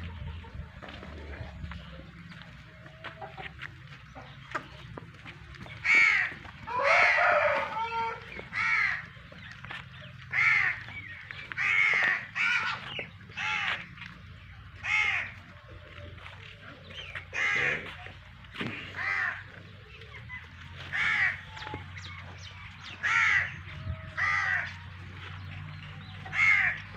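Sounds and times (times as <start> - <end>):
crows cawing: 5.8 - 14.0, 14.8 - 15.4, 17.3 - 18.1, 18.9 - 19.5, 20.8 - 21.8, 22.9 - 24.8, 26.2 - 26.9.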